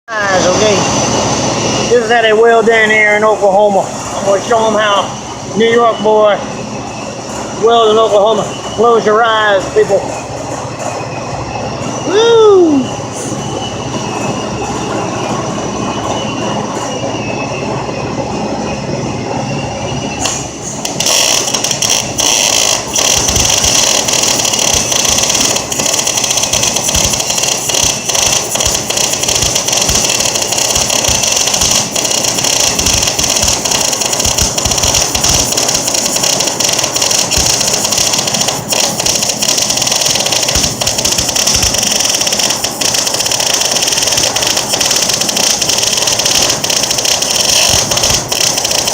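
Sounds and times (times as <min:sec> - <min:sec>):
welder arc crackling and sizzling: 0:20.2 - 0:48.9.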